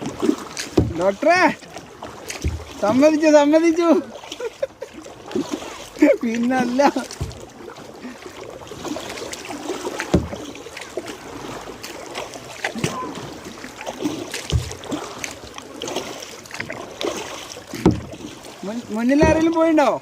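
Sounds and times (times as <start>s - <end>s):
kayak paddles splashing: 0.0s - 20.0s
dull knocks: 0.7s - 1.0s, 2.3s - 3.0s, 10.0s - 10.5s, 14.4s - 14.9s, 17.7s - 18.2s, 19.1s - 19.6s.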